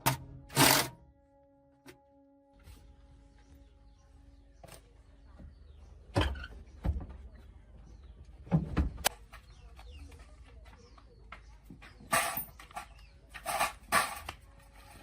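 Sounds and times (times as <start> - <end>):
sharp knocks and clunks: 6.1 - 7.4, 8.4 - 9.4.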